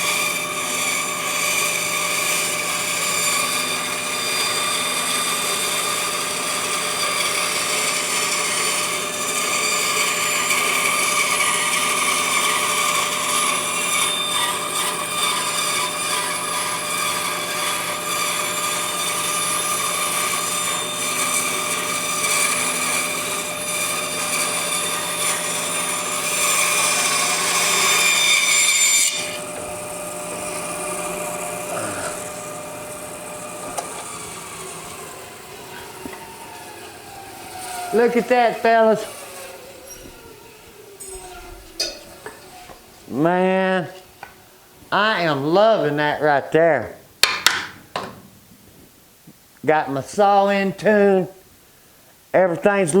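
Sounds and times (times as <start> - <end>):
bandsaw cutting wood: 0.0 - 44.3.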